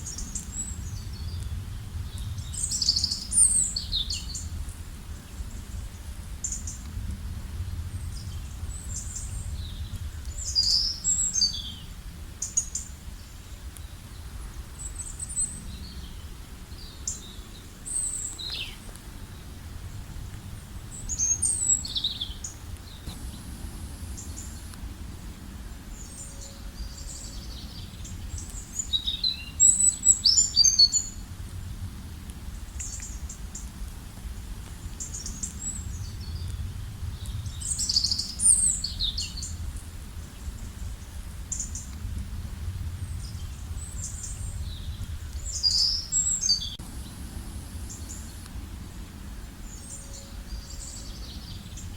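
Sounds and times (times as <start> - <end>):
small birds chirping: 0.0 - 6.9, 7.8 - 19.6, 20.6 - 31.2, 32.5 - 42.0, 43.0 - 51.9
low rumble: 18.8 - 28.4, 31.2 - 51.9.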